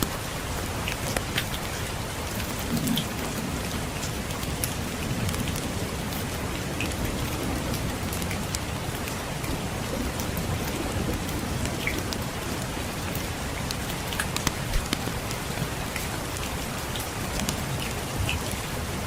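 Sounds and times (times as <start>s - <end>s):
rain falling on a surface: 0.0s - 19.0s
distant thunder rumble: 2.5s - 16.0s
wood fire crackling: 13.6s - 17.9s.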